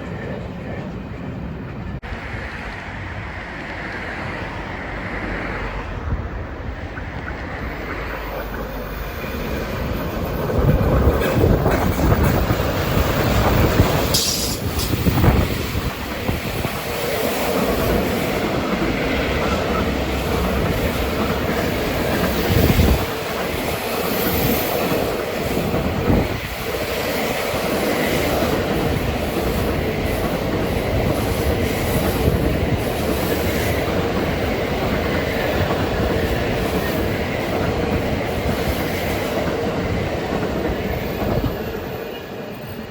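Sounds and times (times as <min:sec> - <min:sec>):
freight train rumbling past: 0:00.0 - 0:42.9
wheels clacking over rail joints: 0:06.9 - 0:42.2.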